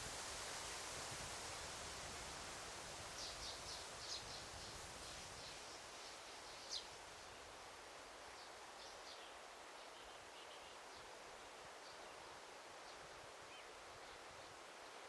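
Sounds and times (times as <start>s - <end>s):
faint steady hiss: 0.0s - 15.0s
small birds chirping: 3.1s - 7.5s.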